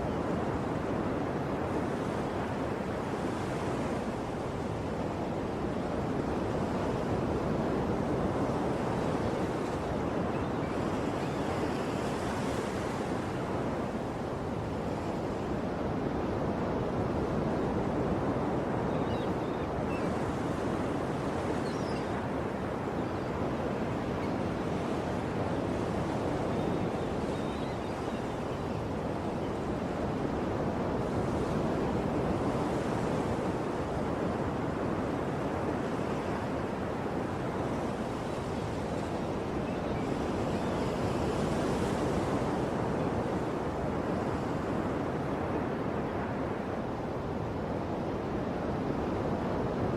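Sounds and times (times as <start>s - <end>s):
faint high bird chirps: 21.6s - 22.2s, 26.5s - 29.5s.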